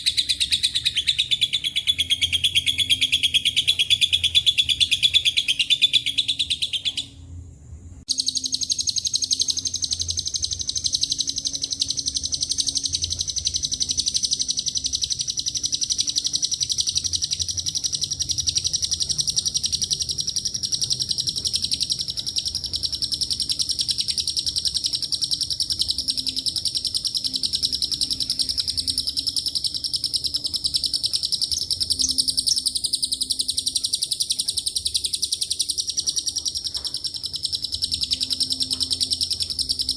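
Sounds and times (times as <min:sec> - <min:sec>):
bird chattering trill: 0:00.0 - 0:07.2, 0:08.1 - 0:39.9.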